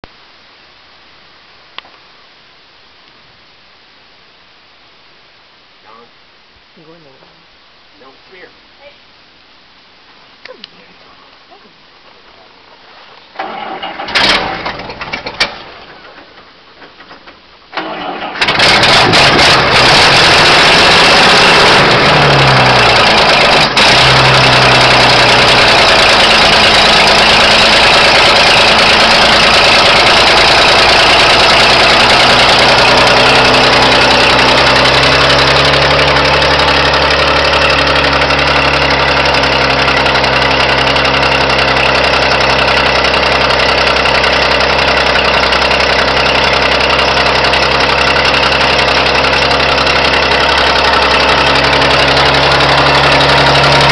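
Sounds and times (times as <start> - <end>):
truck engine revving and idling: 13.4 - 15.9, 17.8 - 53.9.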